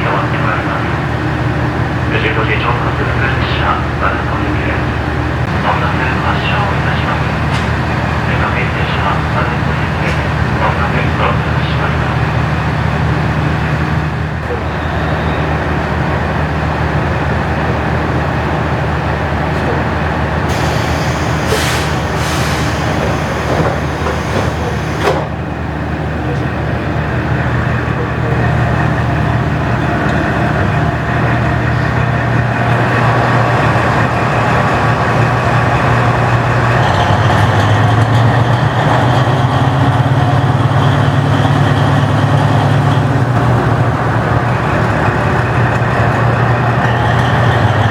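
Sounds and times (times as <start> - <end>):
large diesel engine running: 0.0 - 47.9
air hissing: 20.5 - 25.4.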